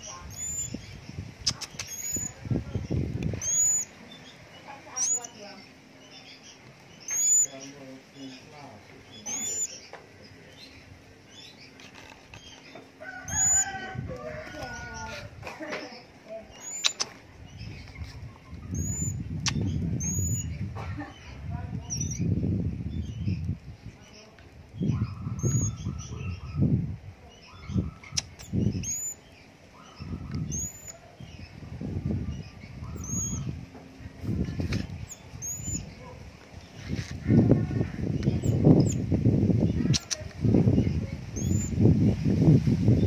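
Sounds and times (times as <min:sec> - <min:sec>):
bird chirping sharply: 0:00.0 - 0:02.4, 0:03.4 - 0:05.4, 0:06.2 - 0:07.8, 0:16.5 - 0:20.5, 0:27.4 - 0:31.0
rapid bird chirping: 0:00.0 - 0:15.4, 0:16.0 - 0:42.0
sharp click: 0:01.4 - 0:02.1, 0:16.7 - 0:17.2, 0:28.1 - 0:28.5, 0:39.9 - 0:40.4
rooster crowing: 0:13.0 - 0:15.2
low thumps and rustling: 0:33.4 - 0:38.8.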